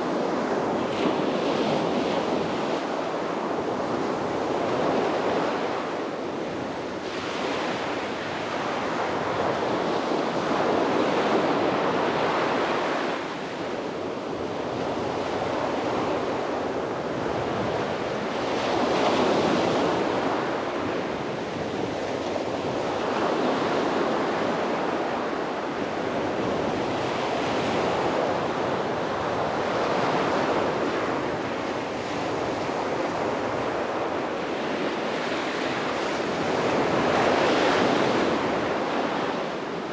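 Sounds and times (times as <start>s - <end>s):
sea waves breaking on beach: 14.5s - 39.9s.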